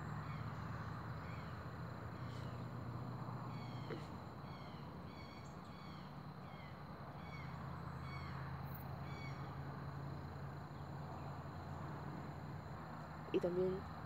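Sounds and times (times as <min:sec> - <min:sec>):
bird calling: 0:00.0 - 0:02.8, 0:03.4 - 0:08.4, 0:09.0 - 0:09.5.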